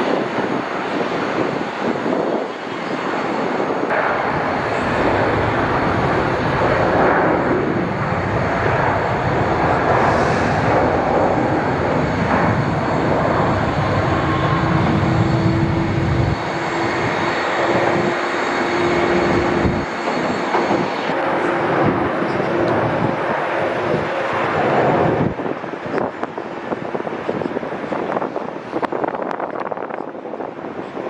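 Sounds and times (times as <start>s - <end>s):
airliner engines: 0.0s - 31.0s
steady hum: 3.9s - 25.4s.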